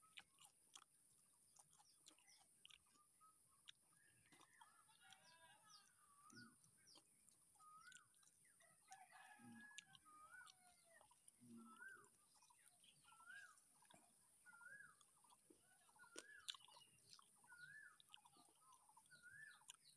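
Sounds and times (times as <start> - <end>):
bird calling: 5.7 - 9.4, 10.0 - 19.9.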